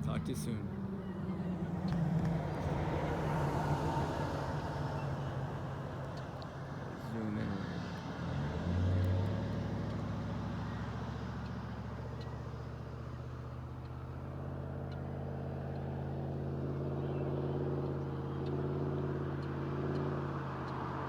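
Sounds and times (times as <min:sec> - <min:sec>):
engine drone: 0:00.0 - 0:21.0.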